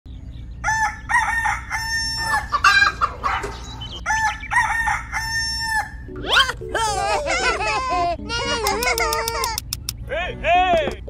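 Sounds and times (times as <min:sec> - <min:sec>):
rooster crowing: 0:00.6 - 0:06.1.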